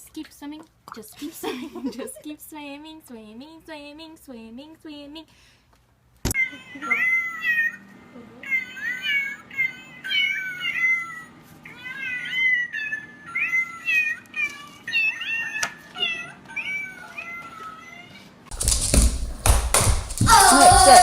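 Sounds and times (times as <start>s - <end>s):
cat meowing: 8.4s - 18.3s.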